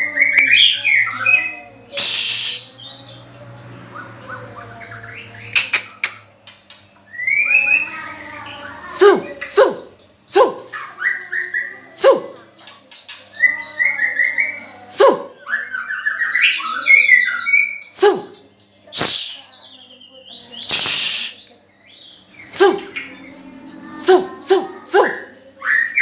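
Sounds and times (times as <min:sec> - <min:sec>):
bird harsh rasping call: 0:01.9 - 0:02.8, 0:19.0 - 0:19.4, 0:20.7 - 0:21.4.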